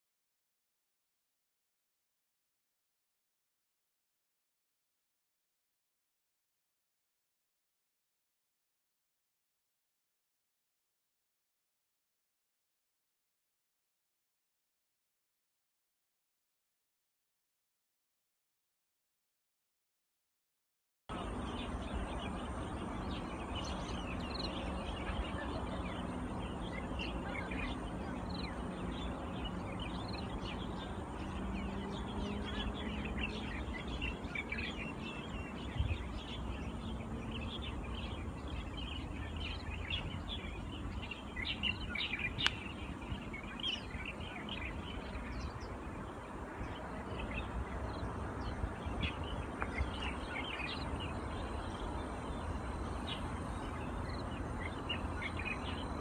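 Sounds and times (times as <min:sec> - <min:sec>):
low outdoor background noise: 0:21.1 - 0:56.0
small birds chirping: 0:21.1 - 0:56.0.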